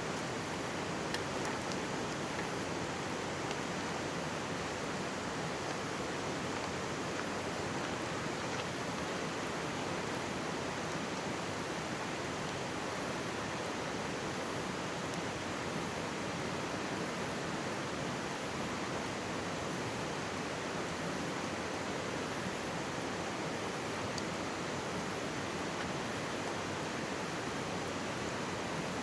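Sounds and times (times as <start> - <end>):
campfire crackling: 0.0 - 4.0
stream babbling: 0.0 - 15.6.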